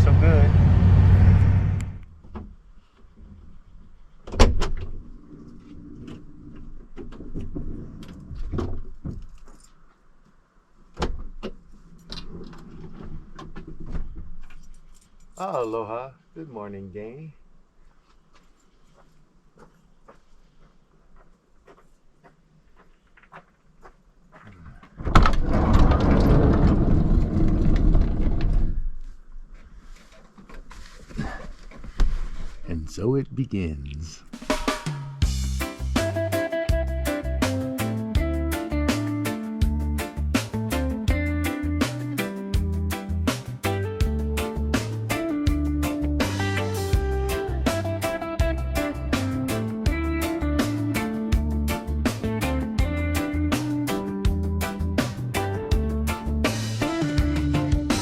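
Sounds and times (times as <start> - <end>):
loud vehicle noise: 0.0 - 2.0.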